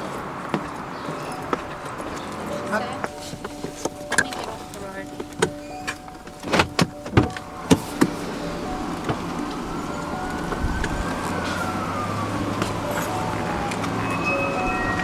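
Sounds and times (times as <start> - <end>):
vehicle running: 0.0 - 15.0
whining tone: 7.0 - 15.0.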